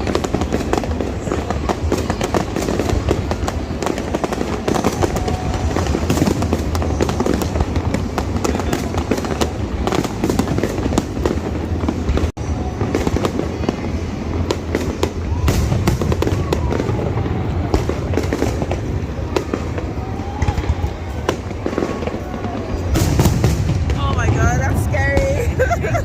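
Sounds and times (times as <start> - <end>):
faint firework whistles: 0.0 - 24.0
fireworks crackling and popping: 0.0 - 26.0.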